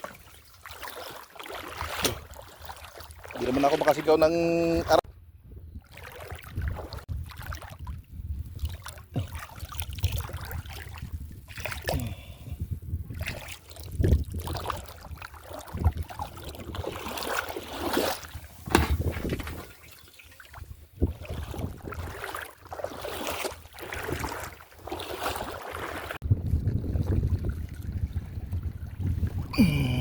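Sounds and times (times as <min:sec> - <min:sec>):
water sloshing and splashing: 0:00.0 - 0:05.1, 0:05.8 - 0:30.0
wind rumble on microphone: 0:05.0 - 0:17.2, 0:18.2 - 0:19.8, 0:20.5 - 0:22.4, 0:26.2 - 0:30.0.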